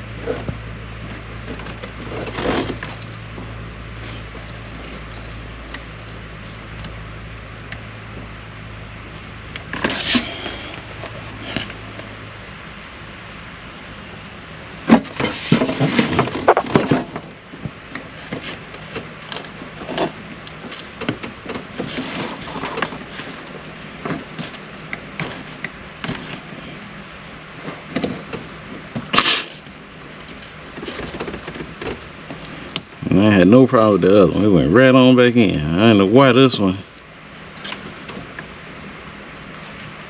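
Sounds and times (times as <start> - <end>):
knocks and clatter of handling: 14.8 - 26.6, 27.6 - 32.4.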